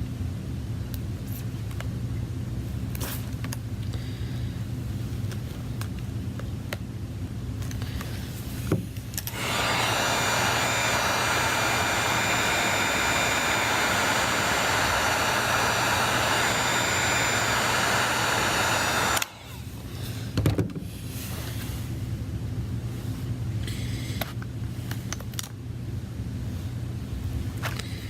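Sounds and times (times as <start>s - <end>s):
soft hum: 0.0s - 20.3s
electric blower motor whining: 9.3s - 19.8s.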